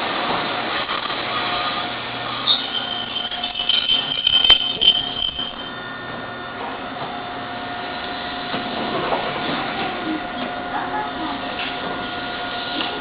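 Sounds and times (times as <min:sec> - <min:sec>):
train car hum: 0:00.0 - 0:13.0
train brake squeal: 0:01.4 - 0:05.7.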